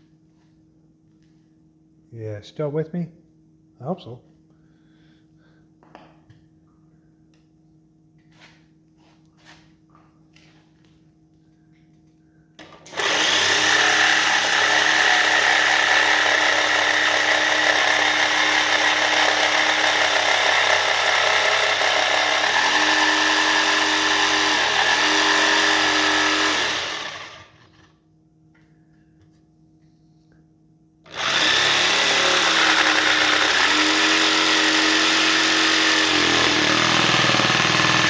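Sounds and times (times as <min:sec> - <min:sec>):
electric power saw cutting wood: 0:12.6 - 0:27.9, 0:31.1 - 0:38.0.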